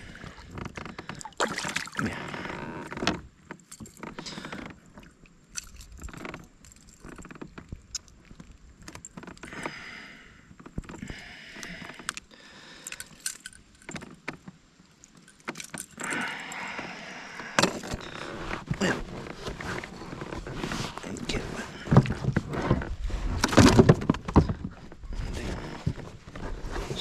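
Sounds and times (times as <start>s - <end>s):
fishing gear clicks and rattles: 0.1s - 9.8s, 10.5s - 22.6s
short rustling: 16.6s - 27.0s.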